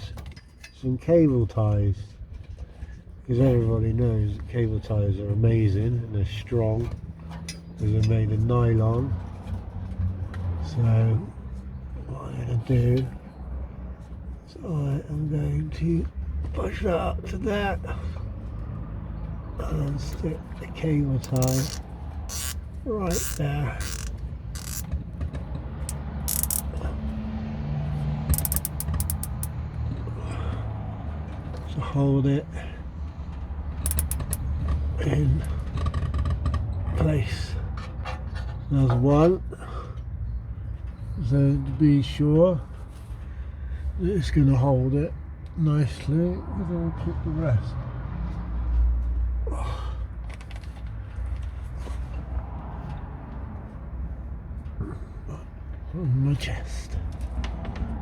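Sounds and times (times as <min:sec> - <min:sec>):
cable tie ratchet clicking: 0:21.2 - 0:24.9, 0:25.8 - 0:26.8, 0:28.3 - 0:29.6, 0:33.9 - 0:34.5
handling scrape: 0:21.2 - 0:24.9, 0:25.9 - 0:26.8, 0:28.3 - 0:29.5, 0:33.9 - 0:34.4.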